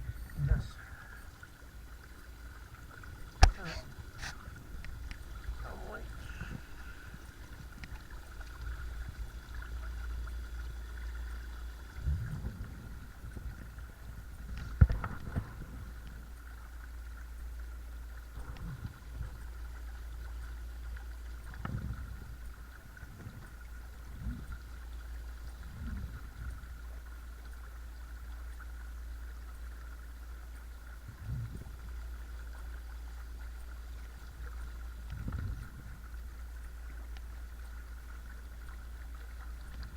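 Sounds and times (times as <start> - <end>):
water moving past hull: 0.0 - 39.9.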